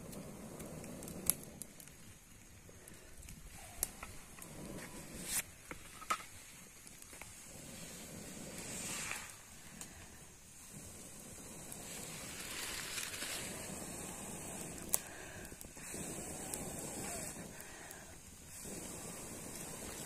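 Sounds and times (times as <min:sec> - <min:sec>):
sticks crackling and popping: 0:00.0 - 0:07.4, 0:11.6 - 0:18.5
campfire burning: 0:00.0 - 0:20.0.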